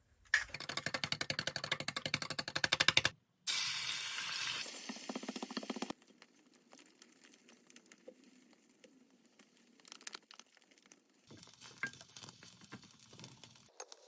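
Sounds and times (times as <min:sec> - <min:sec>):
faint crinkling and clicks: 0:06.0 - 0:14.0.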